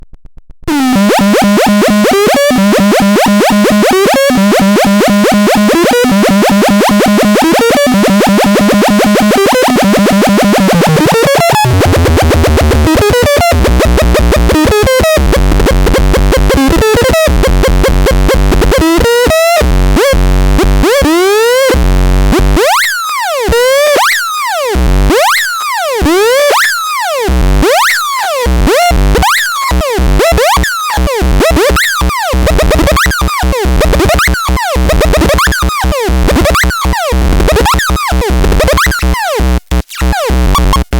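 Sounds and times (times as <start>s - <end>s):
harsh buzzing electronic tones: 0.7s - 40.9s
swooping electronic pitch sweeps: 28.7s - 40.8s.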